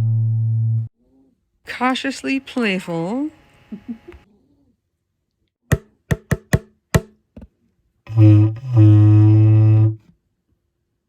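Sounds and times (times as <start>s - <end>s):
sharp knocks: 5.7s - 7.5s.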